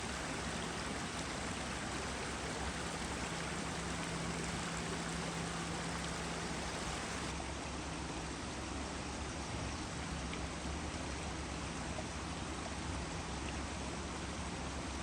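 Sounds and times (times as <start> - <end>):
faint low hum: 0.0 - 7.3
running water: 0.0 - 7.3.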